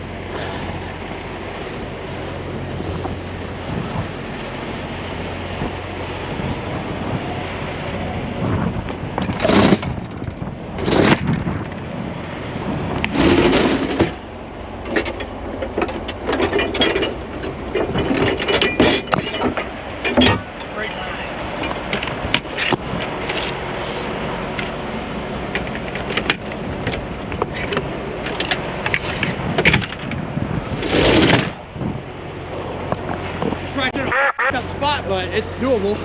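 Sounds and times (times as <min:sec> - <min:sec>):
truck engine idling: 0:00.0 - 0:30.9, 0:31.5 - 0:36.0
knocks and clanks: 0:13.0 - 0:23.6, 0:25.5 - 0:30.2.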